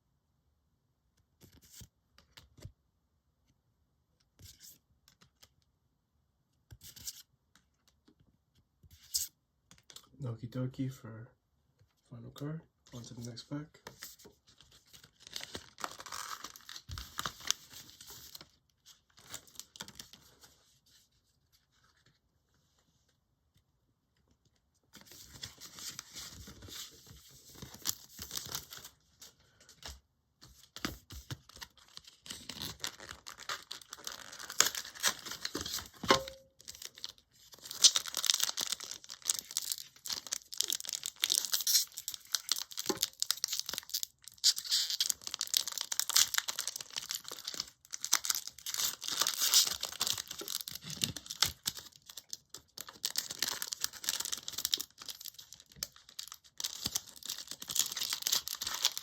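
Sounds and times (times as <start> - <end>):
foil pack tearing and crinkling: 15.0 - 18.4, 31.9 - 36.0, 36.6 - 59.0.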